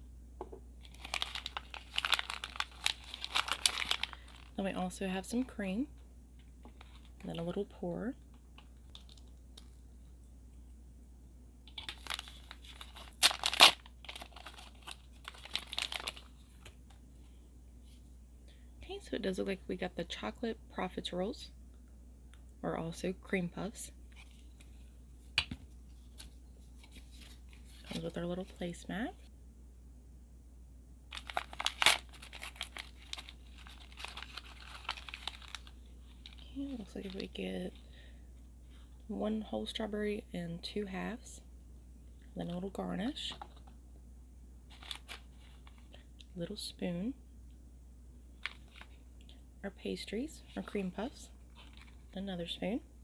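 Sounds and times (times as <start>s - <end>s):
plastic packaging crinkling: 0.8s - 5.5s, 8.8s - 9.8s, 11.7s - 16.7s, 31.1s - 37.4s, 44.7s - 46.0s, 48.4s - 49.0s, 50.6s - 52.2s.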